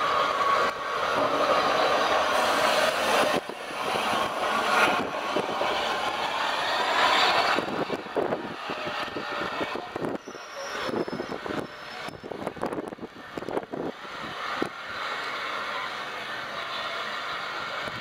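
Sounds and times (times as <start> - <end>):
steam hissing: 0.0 - 12.4
train carriages rumbling: 0.0 - 18.0.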